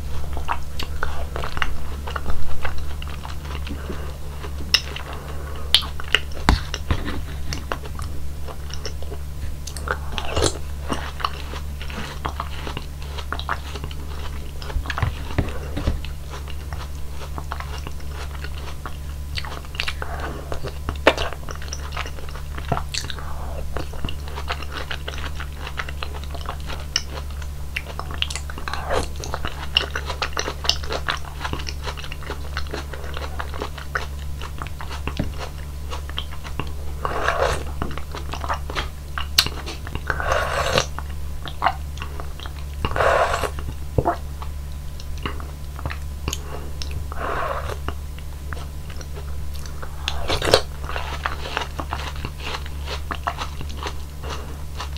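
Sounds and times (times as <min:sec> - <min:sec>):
wet chewing of fruit: 0:00.0 - 0:54.9
low hum: 0:32.2 - 0:54.9
wet slurps: 0:36.6 - 0:37.8, 0:38.4 - 0:41.0, 0:42.8 - 0:44.2, 0:45.9 - 0:48.0.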